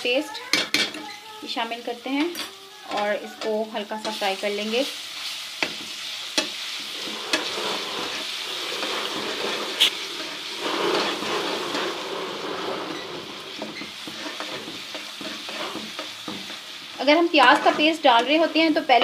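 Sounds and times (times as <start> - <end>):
paste sizzling in ghee: 1.4 - 19.0.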